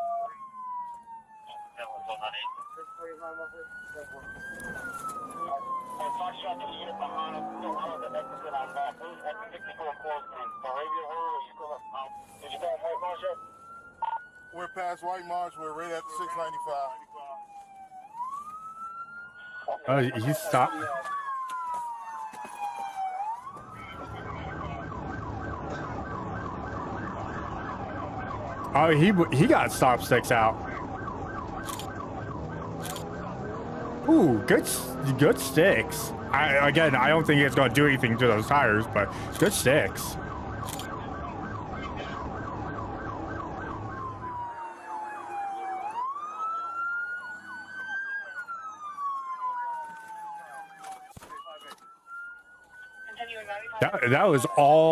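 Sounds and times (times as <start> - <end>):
police siren wailing and yelping: 0.0 - 54.9
low road rumble: 23.4 - 44.5.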